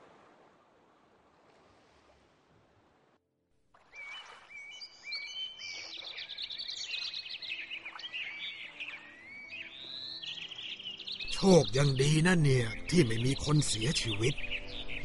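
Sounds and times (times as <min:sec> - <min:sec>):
small birds chirping and whistling: 0:03.9 - 0:15.0.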